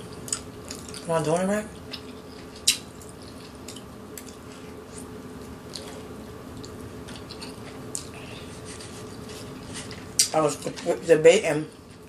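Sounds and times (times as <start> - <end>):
steady low hum: 0.0 - 12.0
wet chewing clicks: 1.8 - 8.2.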